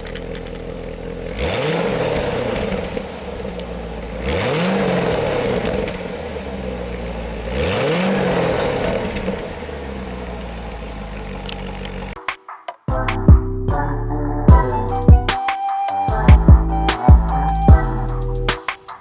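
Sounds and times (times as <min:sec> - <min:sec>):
car engine idling and revving: 0:00.0 - 0:12.2.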